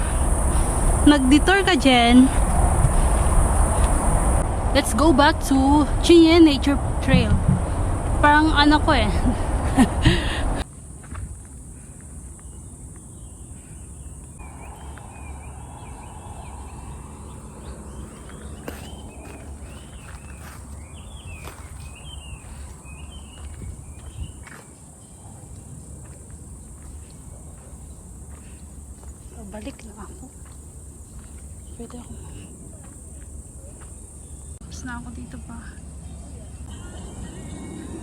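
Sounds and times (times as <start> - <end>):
insects buzzing: 0.0 - 38.0
footsteps on trail: 9.0 - 34.6
bird chirping: 11.9 - 37.8.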